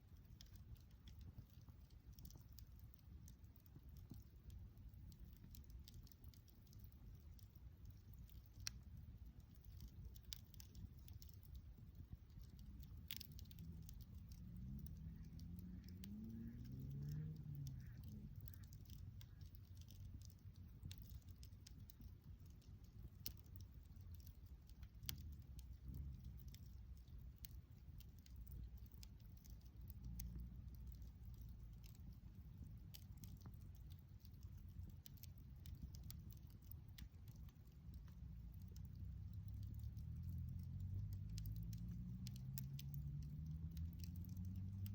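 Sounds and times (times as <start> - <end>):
wood fire crackling and popping: 0.0 - 44.9
low rumble: 10.7 - 22.6.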